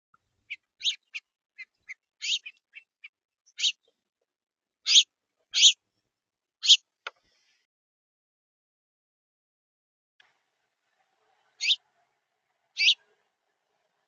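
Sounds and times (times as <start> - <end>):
finch chirp calls: 0.5 - 3.9, 4.9 - 5.8, 6.6 - 6.8, 11.6 - 11.8, 12.8 - 13.0.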